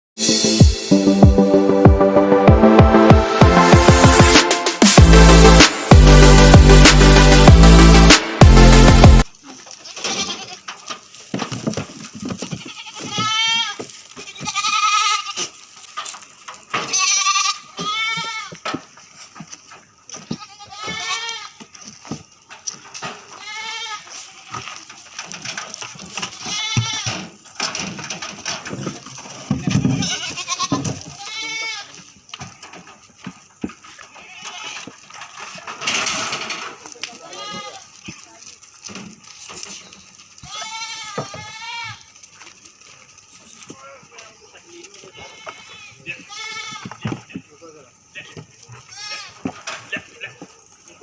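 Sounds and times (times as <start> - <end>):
goats bleating: 9.4 - 10.8, 12.4 - 15.7, 16.7 - 18.7, 20.2 - 21.8, 23.2 - 24.8, 25.8 - 27.4, 29.3 - 32.2, 33.9 - 35.2, 36.9 - 38.5, 39.5 - 42.3, 43.2 - 51.0.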